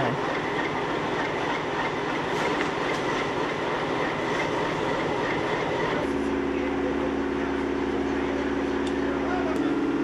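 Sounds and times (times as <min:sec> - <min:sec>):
train machinery running: 0:00.0 - 0:10.0.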